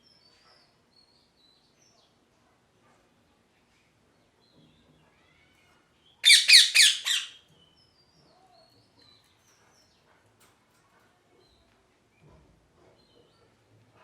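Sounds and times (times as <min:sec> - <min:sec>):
parrot squawking harshly: 0:06.2 - 0:07.4.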